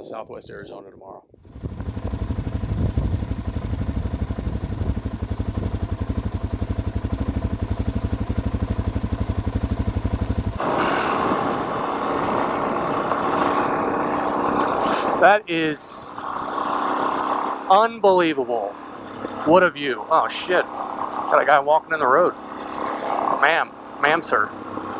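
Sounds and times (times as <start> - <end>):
motorcycle engine running: 1.4 - 15.2, 16.0 - 18.0, 18.7 - 24.9
wind rushing: 1.5 - 7.0.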